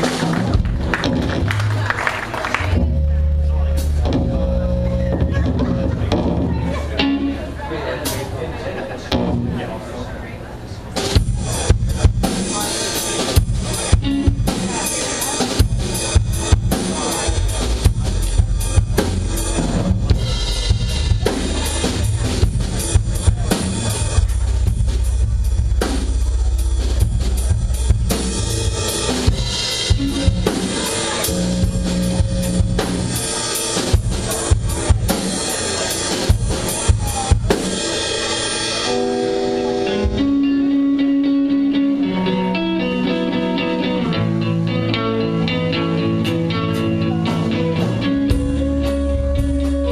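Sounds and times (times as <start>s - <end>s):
low bass line: 0.0s - 7.8s, 15.6s - 35.1s, 39.0s - 49.9s
bass drum: 2.6s - 6.8s, 15.6s - 30.6s, 31.3s - 33.2s.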